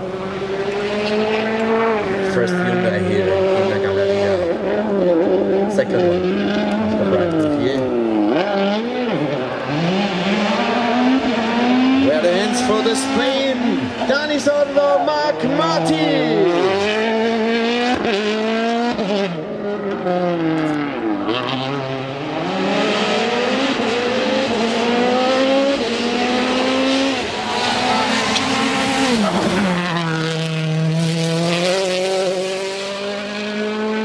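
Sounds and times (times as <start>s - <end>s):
rally car engine at full throttle: 0.0s - 34.0s.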